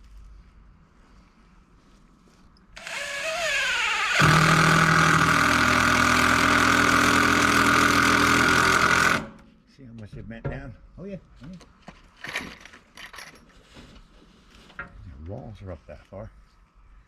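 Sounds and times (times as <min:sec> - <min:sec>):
motor whining and humming: 0:02.8 - 0:09.4.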